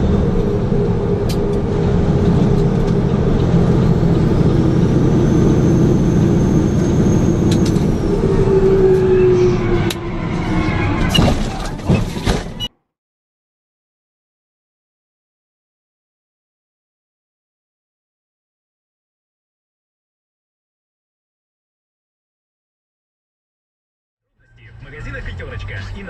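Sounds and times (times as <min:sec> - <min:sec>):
road vehicle engine and tyres: 0:00.0 - 0:12.9, 0:24.3 - 0:26.0.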